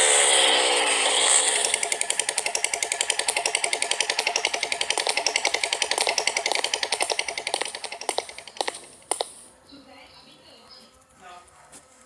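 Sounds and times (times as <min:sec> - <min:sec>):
mechanical rattle of clicks: 0:01.6 - 0:09.4.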